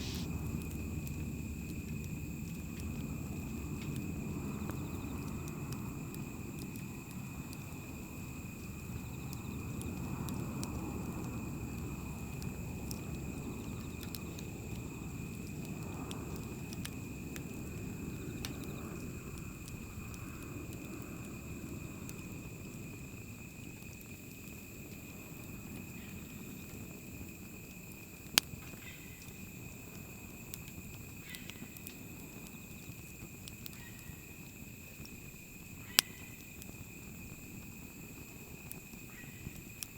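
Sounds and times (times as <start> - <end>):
sharp pop of fire: 0.0 - 0.4
wood fire rushing: 0.0 - 4.2
fire crackling: 0.0 - 39.9.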